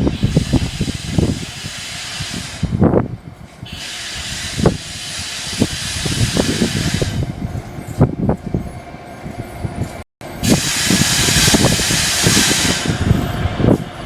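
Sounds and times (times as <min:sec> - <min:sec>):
train hissing: 0:00.0 - 0:03.0, 0:03.6 - 0:07.5, 0:10.3 - 0:14.0.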